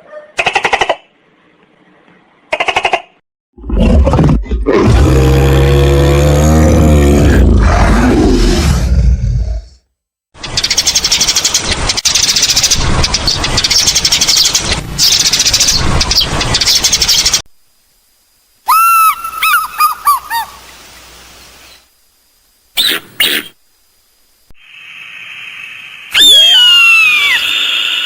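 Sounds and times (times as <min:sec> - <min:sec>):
clear arching bird calls: 0:18.7 - 0:20.8, 0:22.7 - 0:23.6, 0:26.1 - 0:28.0.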